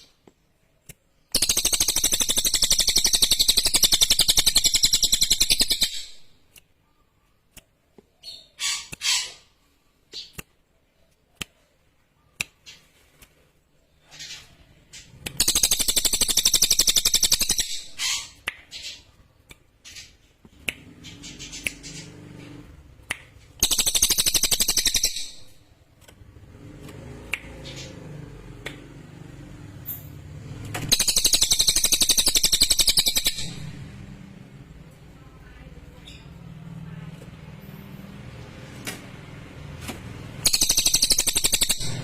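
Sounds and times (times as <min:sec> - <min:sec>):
bird singing high trills: 0:40.4 - 0:42.0.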